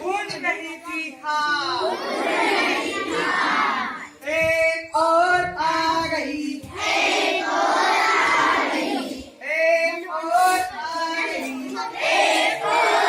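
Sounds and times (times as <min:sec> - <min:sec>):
children singing in chorus: 0:01.8 - 0:04.2, 0:06.5 - 0:09.4, 0:10.6 - 0:13.0.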